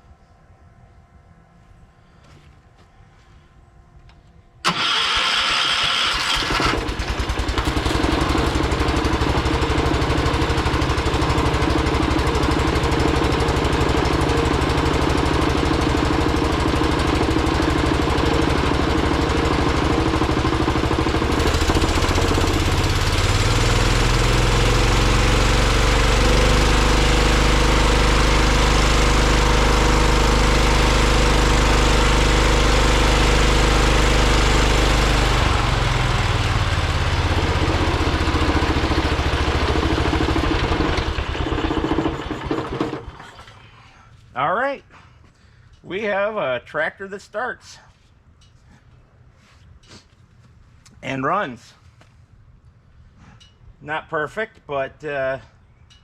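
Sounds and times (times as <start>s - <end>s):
tractor engine cranking and running: 4.6s - 43.7s.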